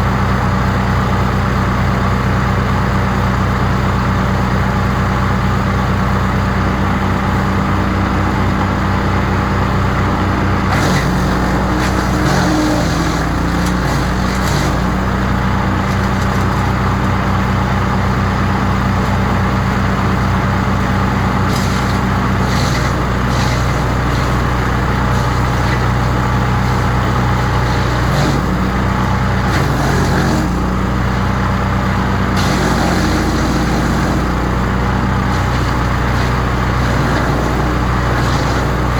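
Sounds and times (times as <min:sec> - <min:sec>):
wood chipper engine running: 0:00.0 - 0:38.9
rough chipping noise: 0:09.6 - 0:38.9.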